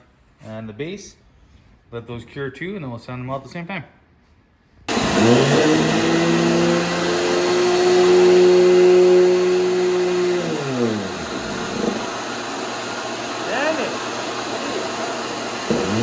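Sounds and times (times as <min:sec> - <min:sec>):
electric sander motor: 0:04.9 - 0:16.0
loud hiss: 0:09.3 - 0:16.0.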